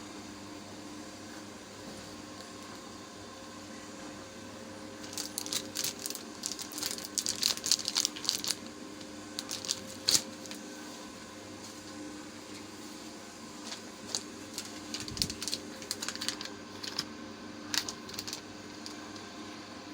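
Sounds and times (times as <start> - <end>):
plastic bag crinkling: 5.0 - 10.6, 13.6 - 17.1, 17.7 - 19.1.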